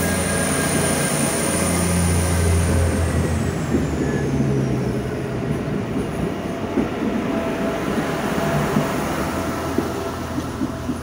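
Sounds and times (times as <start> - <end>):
train engine running: 0.0 - 11.0
train wheels clicking: 5.4 - 11.0.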